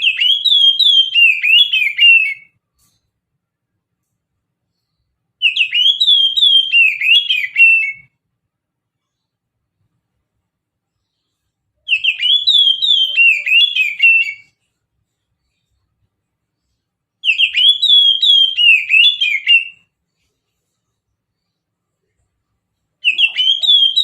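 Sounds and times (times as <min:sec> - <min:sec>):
bird singing whistled notes: 0:00.0 - 0:02.5, 0:05.4 - 0:08.1, 0:11.8 - 0:14.6, 0:17.2 - 0:19.9, 0:23.0 - 0:24.0.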